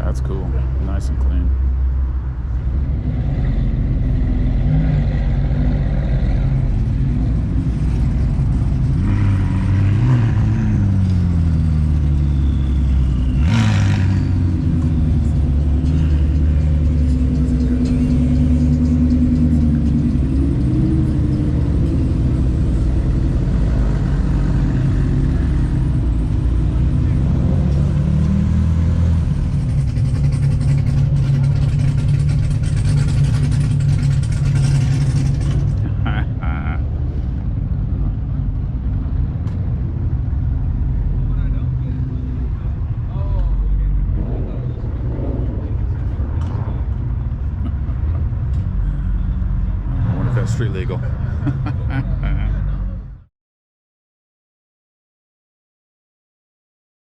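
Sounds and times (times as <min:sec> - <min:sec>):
car engine running: 0:10.6 - 0:52.8.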